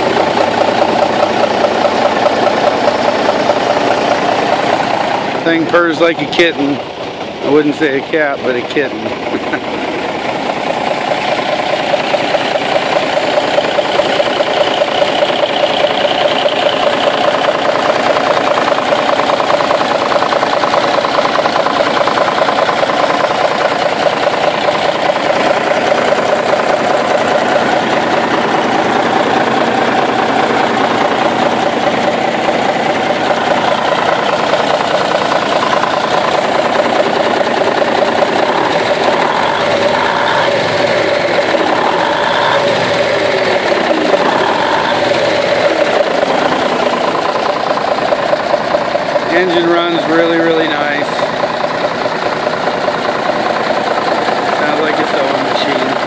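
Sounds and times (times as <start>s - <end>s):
diesel engine clattering: 0.0s - 56.0s.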